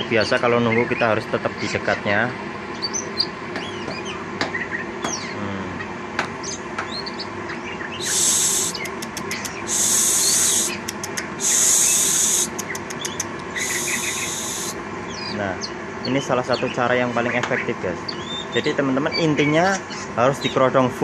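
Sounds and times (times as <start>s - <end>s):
bird twittering softly: 6.4s - 20.6s
short hissing bursts: 8.0s - 12.8s, 13.5s - 14.8s
quick clicks: 8.0s - 14.0s.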